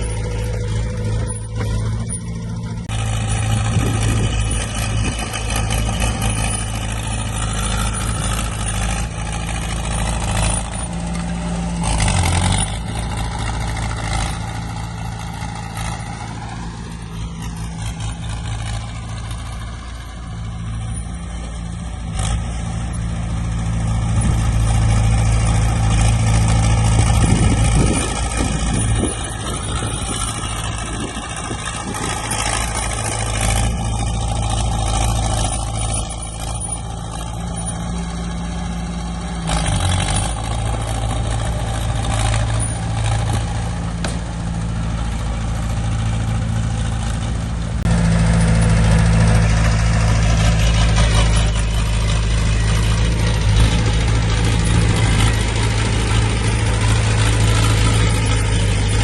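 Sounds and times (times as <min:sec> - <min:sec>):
metal clanks: 0:00.0 - 0:16.4
heavy diesel engine under load: 0:00.0 - 0:59.0.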